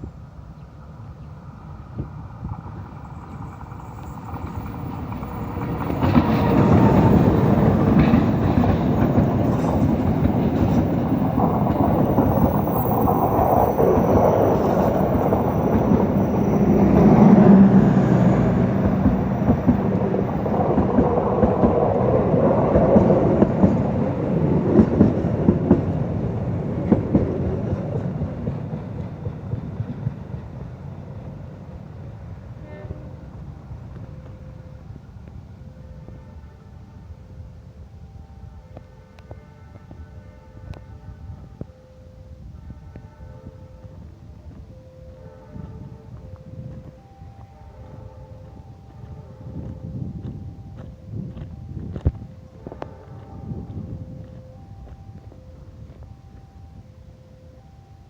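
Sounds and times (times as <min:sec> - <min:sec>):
train passing: 0:00.0 - 0:58.0
wheels clicking over rail joints: 0:02.4 - 0:31.8.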